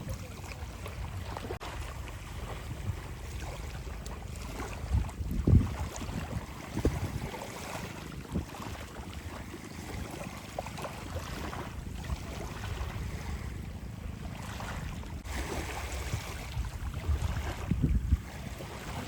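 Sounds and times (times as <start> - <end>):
sea waves washing on shore: 0.0 - 19.0
wind buffeting microphone: 0.0 - 19.0.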